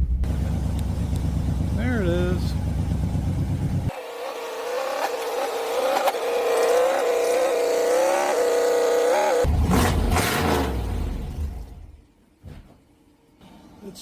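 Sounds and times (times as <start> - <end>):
low rumble with hiss: 0.0 - 3.9.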